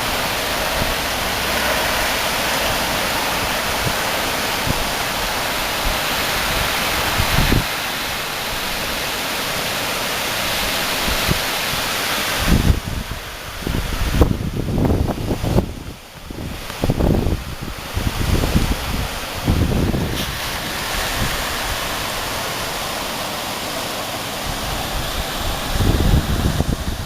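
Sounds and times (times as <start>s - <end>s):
wind buffeting microphone: 0.0s - 9.3s, 10.4s - 27.0s
strong wind gusts: 0.0s - 27.0s.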